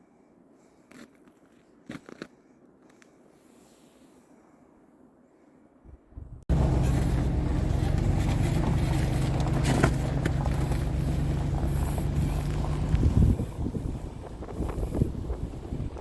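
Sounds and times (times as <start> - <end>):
truck engine running: 6.5 - 16.0.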